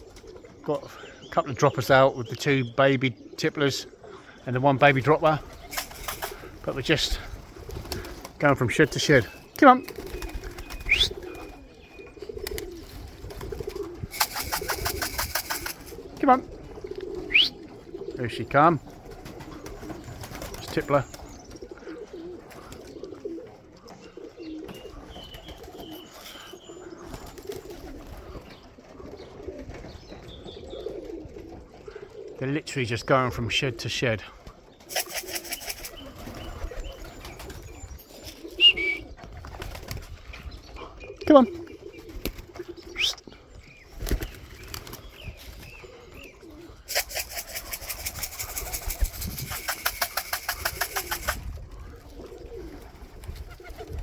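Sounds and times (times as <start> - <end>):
pigeons cooing: 0.0 - 54.0
rapid clatter of wingbeats: 5.3 - 11.7, 12.4 - 16.2, 19.0 - 21.6, 34.8 - 37.7, 46.8 - 51.6.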